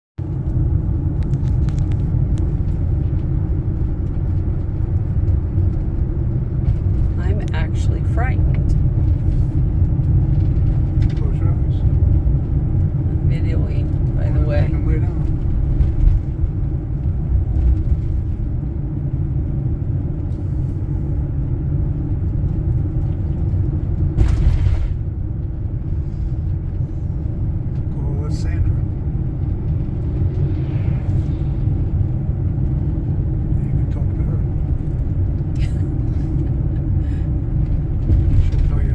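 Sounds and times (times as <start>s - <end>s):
road and engine rumble: 0.2s - 38.9s
rush of noise: 28.2s - 38.9s.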